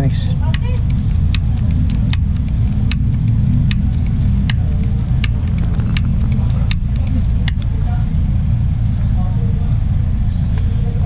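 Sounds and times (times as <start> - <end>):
diesel truck engine idling: 0.0 - 11.0
sharp clicks: 0.4 - 8.5.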